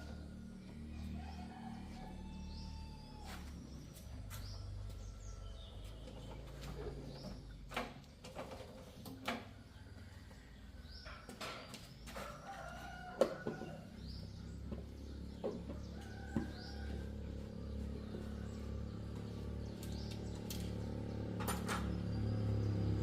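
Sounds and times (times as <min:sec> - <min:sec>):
chickens clucking: 0:08.3 - 0:20.3.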